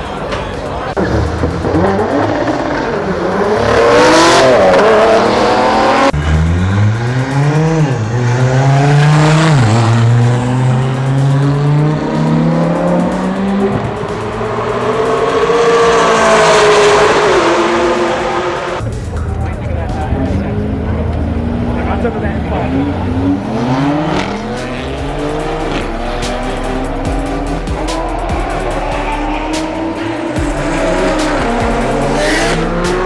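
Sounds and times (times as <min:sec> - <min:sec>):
car engine revving hard: 0:01.0 - 0:18.8, 0:20.2 - 0:33.0.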